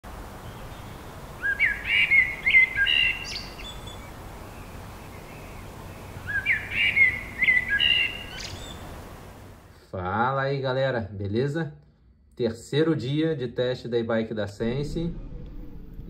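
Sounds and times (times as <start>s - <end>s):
songbird singing: 0.1s - 9.6s
low background hiss: 0.1s - 15.2s.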